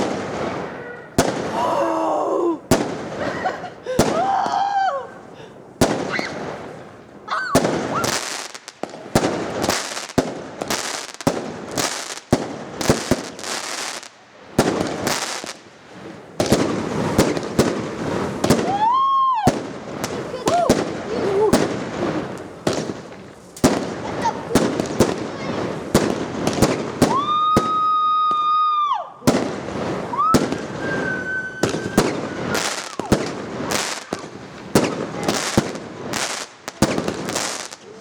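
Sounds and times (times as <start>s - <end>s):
firework bangs: 0.0s - 38.0s
firework crackle: 0.0s - 38.0s.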